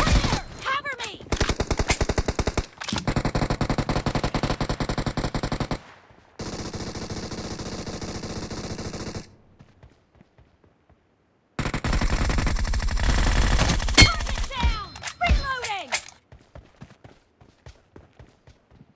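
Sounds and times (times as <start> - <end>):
video game automatic gunfire: 1.3 - 9.3, 11.6 - 14.6.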